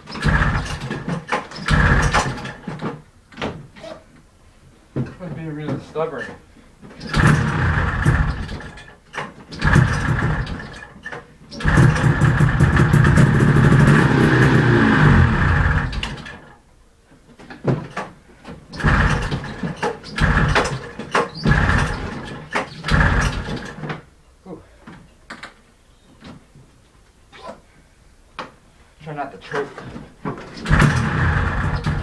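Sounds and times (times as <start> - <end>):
snowmobile engine cranking: 0.0 - 3.0, 7.0 - 16.6, 18.7 - 24.0, 30.4 - 32.0
two-stroke engine running: 0.2 - 1.1, 1.7 - 2.6, 7.0 - 8.9, 9.6 - 10.9, 11.5 - 16.5, 18.8 - 23.8, 30.6 - 32.0.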